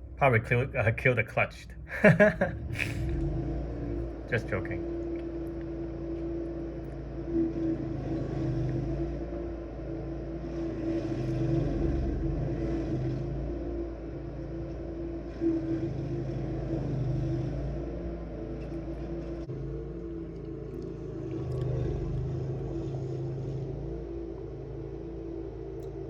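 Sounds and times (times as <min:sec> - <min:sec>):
cutting wheel grinding stump: 0:00.0 - 0:26.0
stump grinder engine running: 0:01.8 - 0:25.2.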